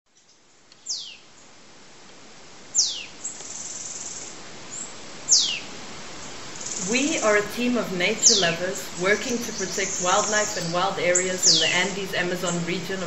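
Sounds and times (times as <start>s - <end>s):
insects hissing: 2.6s - 13.0s
high pulsing insect trill: 2.8s - 13.0s.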